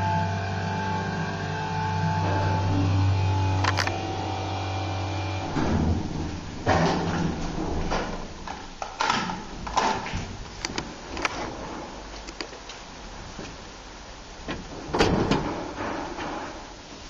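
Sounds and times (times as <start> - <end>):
elevator humming: 0.0 - 12.1
elevator clanks and knocks: 5.4 - 10.4, 14.5 - 16.7.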